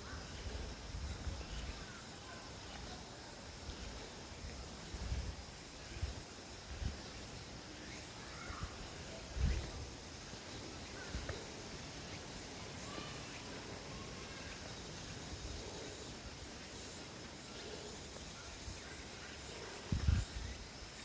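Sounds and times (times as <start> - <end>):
insects chirping: 0.0 - 21.0
faint bird calls: 7.8 - 9.8, 10.6 - 16.2.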